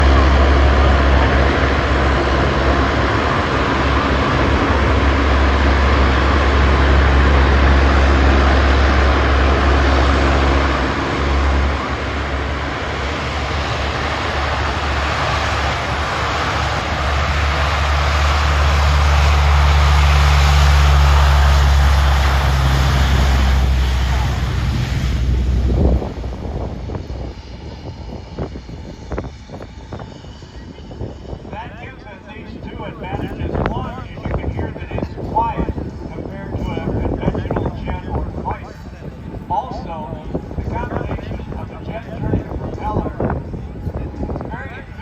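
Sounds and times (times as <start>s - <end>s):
aircraft engine rumble: 0.0s - 45.0s.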